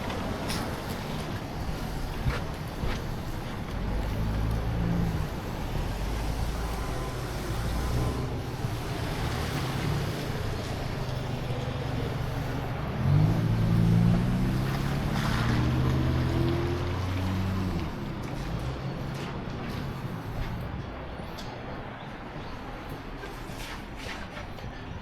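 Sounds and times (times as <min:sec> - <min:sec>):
passing car traffic: 0:00.0 - 0:25.0
car engine pulling away: 0:03.6 - 0:19.2.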